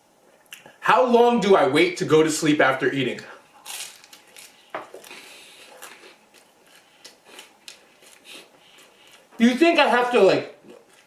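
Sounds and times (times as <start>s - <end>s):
chewing food: 10.6s - 11.0s.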